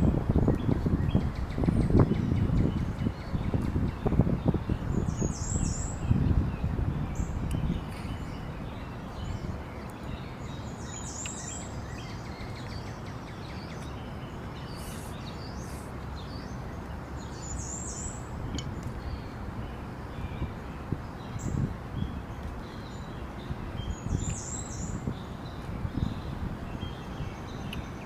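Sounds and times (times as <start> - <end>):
birds chirping: 0.0 - 28.0
steady background hiss: 0.0 - 28.0.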